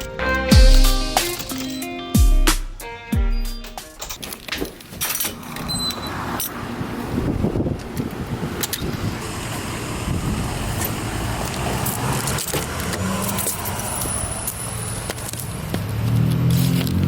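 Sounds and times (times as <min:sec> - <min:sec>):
keys jangling: 0:00.0 - 0:02.2, 0:03.4 - 0:06.6.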